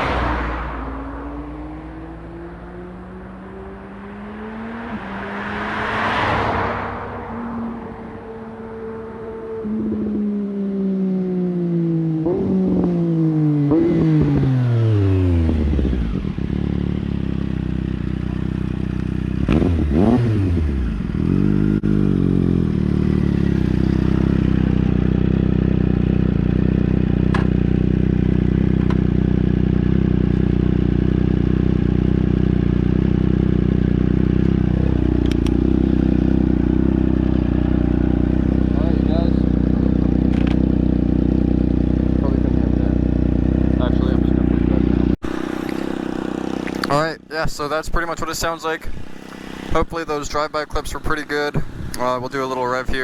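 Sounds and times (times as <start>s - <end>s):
motorcycle engine passing: 0.0s - 53.0s
motorcycle engine idling: 15.4s - 19.5s, 20.9s - 53.0s.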